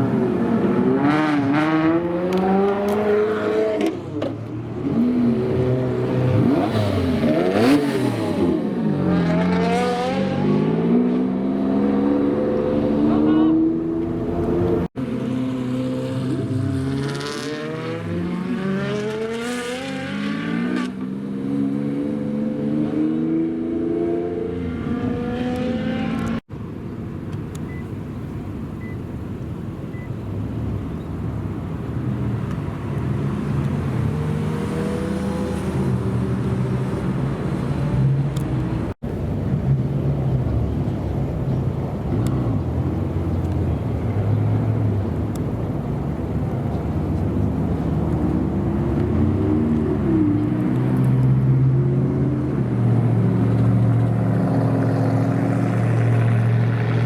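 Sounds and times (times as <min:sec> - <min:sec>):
sports car engines revving: 0:00.0 - 0:26.4, 0:31.9 - 0:57.0.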